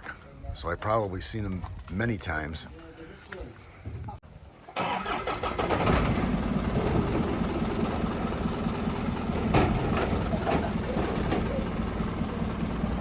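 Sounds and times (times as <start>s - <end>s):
truck engine rumbling: 4.8s - 13.0s.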